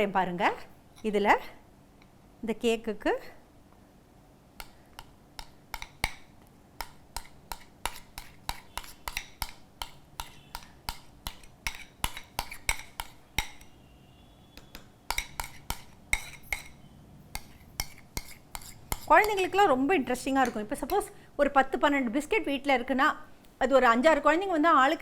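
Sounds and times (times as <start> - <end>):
spoon clinking against bowl: 7.2 - 13.7, 14.6 - 16.8.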